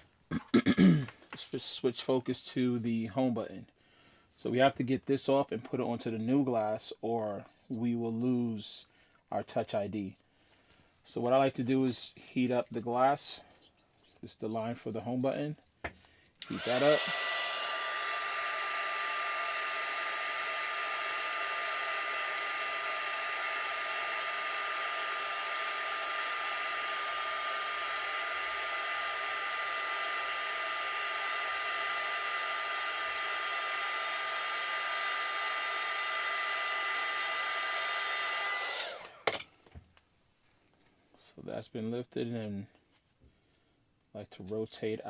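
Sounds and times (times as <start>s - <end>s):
heat gun blowing with whine: 16.4s - 39.4s.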